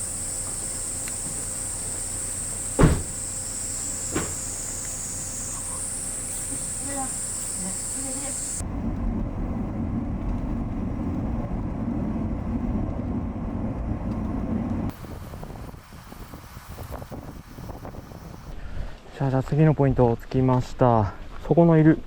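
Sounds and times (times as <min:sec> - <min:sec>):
high-pitched drone: 0:00.0 - 0:08.6
vehicle rumbling in motion: 0:00.0 - 0:17.6.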